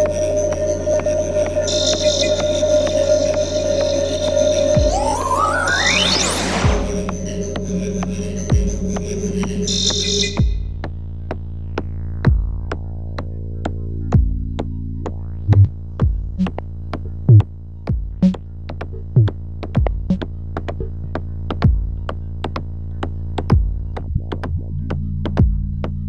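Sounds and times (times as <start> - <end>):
synthesizer drone: 0.0 - 10.7
deep kick drum: 4.8 - 5.3, 6.6 - 7.2, 8.5 - 9.2, 10.4 - 26.0.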